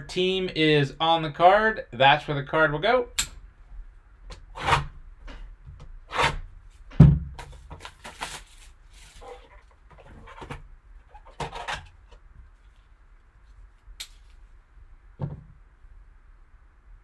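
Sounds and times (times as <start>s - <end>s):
soft thump: 6.9s - 7.4s, 15.2s - 15.5s
packaging rustling and scraping: 7.4s - 12.9s.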